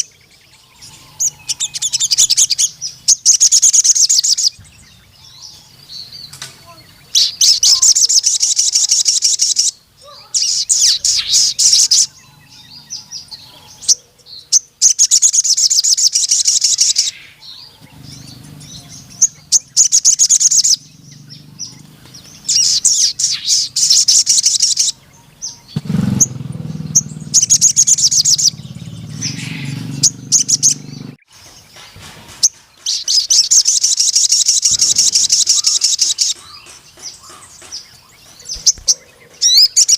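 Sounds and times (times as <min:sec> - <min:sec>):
bird trilling high notes: 0:15.0 - 0:31.2.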